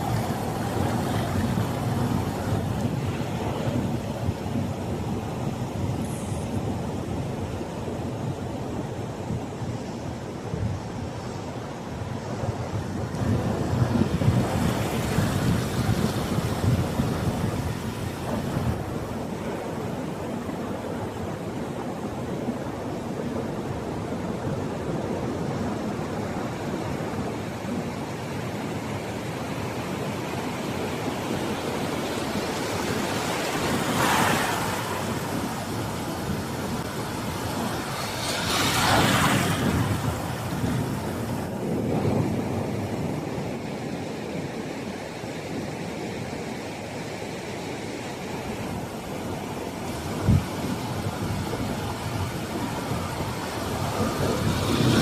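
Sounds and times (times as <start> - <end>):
waves breaking: 0.0 - 9.2, 11.8 - 55.0
ocean surf washing: 0.0 - 55.0.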